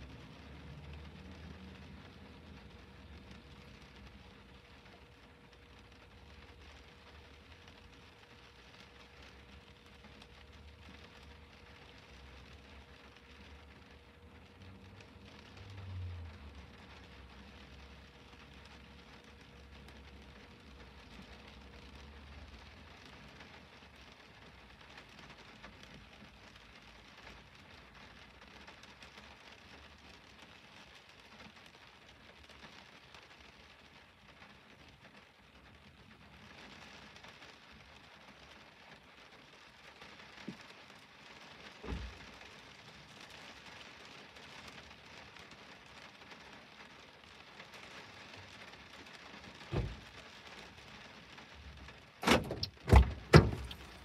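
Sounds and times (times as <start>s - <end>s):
rain patter on car: 0.0s - 54.0s
dull thumps: 52.2s - 54.0s.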